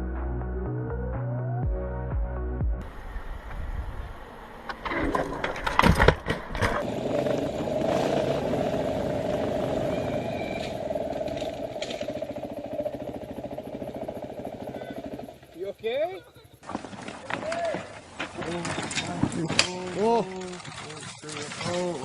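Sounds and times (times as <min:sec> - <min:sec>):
motorcycle engine running: 0:06.6 - 0:16.8.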